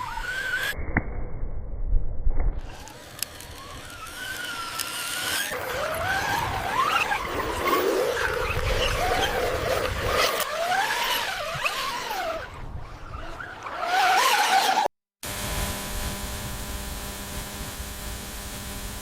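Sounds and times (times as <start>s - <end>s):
steady grinding noise: 2.6s - 12.4s, 14.2s - 19.0s
electric motors whining: 2.6s - 19.0s.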